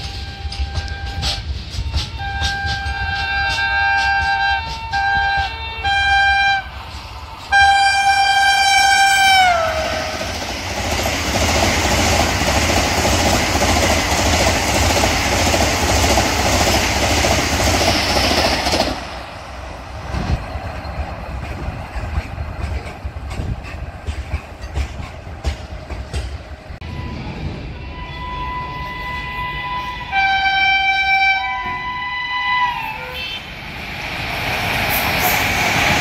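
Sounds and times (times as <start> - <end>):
train horn blast: 0.0 - 6.8, 7.5 - 10.3, 26.8 - 33.6
train rushing past: 0.0 - 36.0.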